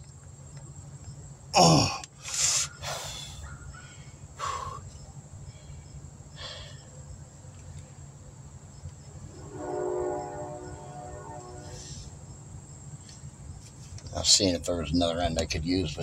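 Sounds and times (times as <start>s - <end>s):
crickets chirring: 0.0s - 16.0s
distant horn tone: 9.1s - 12.5s.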